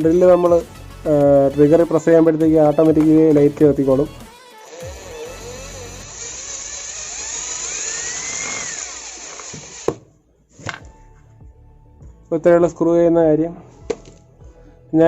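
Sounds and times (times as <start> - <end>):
cordless drill motor whine: 4.2 - 10.0.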